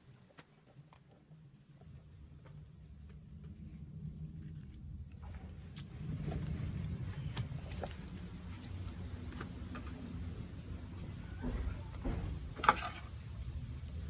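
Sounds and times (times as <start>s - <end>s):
low steady hum: 0.0s - 14.0s
utensil scraping vegetables: 12.5s - 13.6s.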